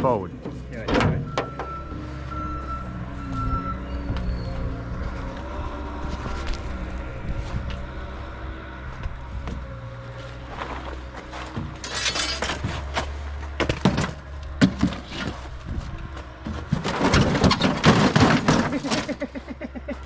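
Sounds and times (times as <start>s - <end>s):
crunching: 10.0s - 19.4s
knocks and clatter: 10.6s - 19.4s.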